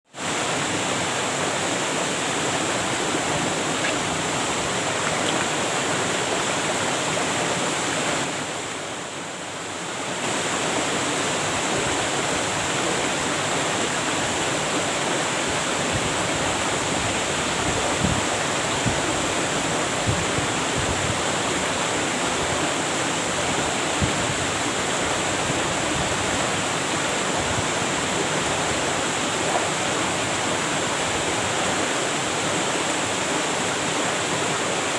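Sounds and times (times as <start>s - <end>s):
waterfall pouring: 2.0s - 8.5s.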